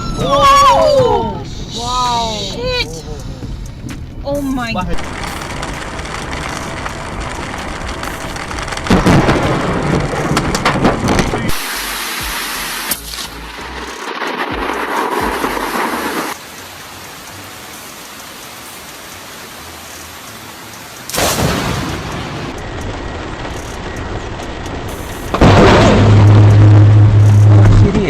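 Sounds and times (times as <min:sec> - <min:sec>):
steady rain: 0:00.0 - 0:28.0
thunderclap rumbling: 0:04.5 - 0:12.5, 0:13.8 - 0:16.4, 0:21.2 - 0:28.0.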